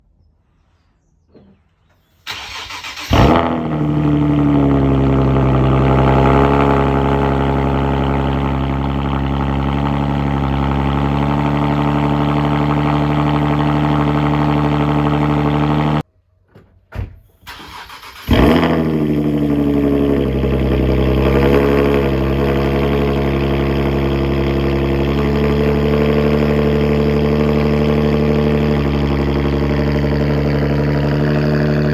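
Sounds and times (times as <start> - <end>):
engine cranking: 2.3 - 3.6, 17.4 - 19.2
engine revving into idle: 2.3 - 16.0, 17.6 - 31.9.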